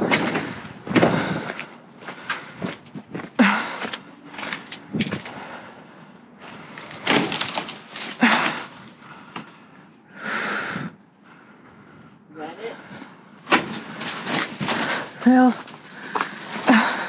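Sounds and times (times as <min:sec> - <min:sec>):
scrap metal clunking and scraping: 0:13.4 - 0:16.8.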